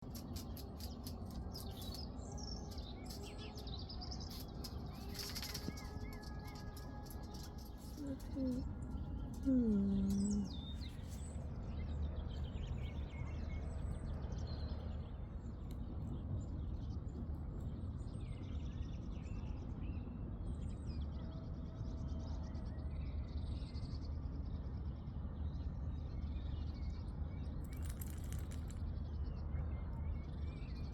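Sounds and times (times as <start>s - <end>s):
small birds chirping: 0.0s - 19.3s, 26.6s - 30.9s
steady low rumble: 0.0s - 21.1s.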